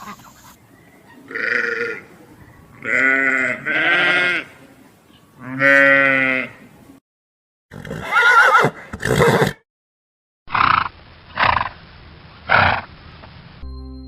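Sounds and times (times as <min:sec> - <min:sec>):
animal bleating: 0:01.3 - 0:02.1, 0:02.8 - 0:04.6, 0:05.4 - 0:06.6.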